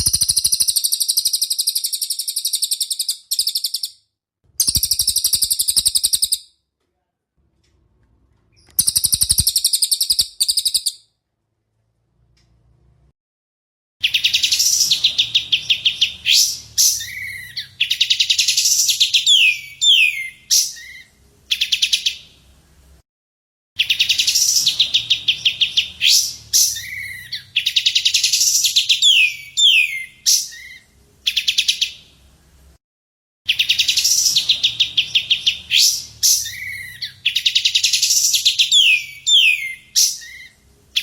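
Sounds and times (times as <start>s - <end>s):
songbird trill and whistles: 0.0s - 4.0s, 4.6s - 6.4s, 8.6s - 11.0s, 14.0s - 22.3s, 23.8s - 32.0s, 33.5s - 41.0s.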